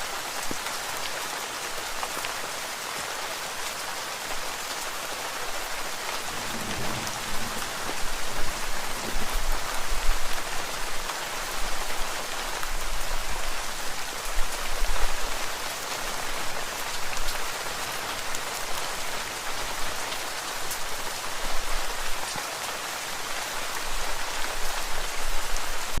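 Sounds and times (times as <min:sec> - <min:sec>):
steady rain hissing: 0:00.0 - 0:26.0.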